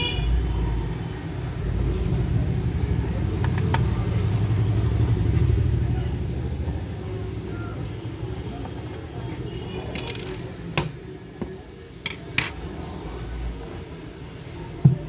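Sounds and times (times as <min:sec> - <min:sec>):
low rumble: 0:00.4 - 0:07.6
sharp clicks of small objects: 0:10.0 - 0:10.6.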